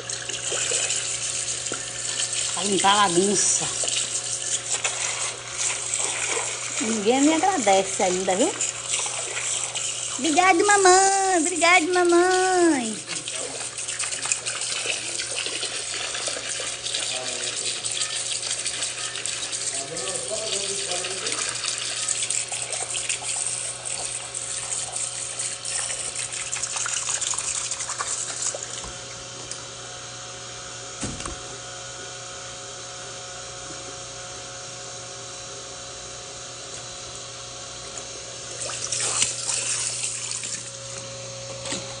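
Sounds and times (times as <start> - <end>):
tap water running into sink: 0.0 - 29.0
thump: 31.0 - 31.4.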